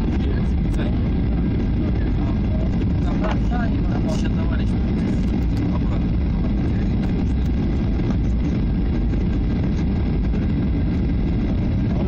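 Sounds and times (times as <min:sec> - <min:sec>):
airliner cabin engine rumble: 0:00.0 - 0:12.0.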